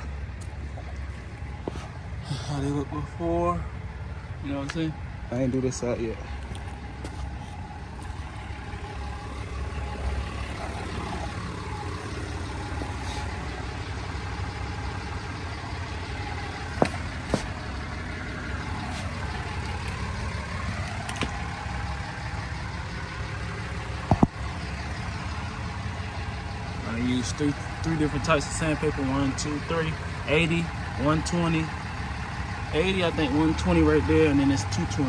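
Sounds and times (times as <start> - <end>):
vehicle engine idling: 0.0 - 35.0
sharp knocks: 24.0 - 24.4.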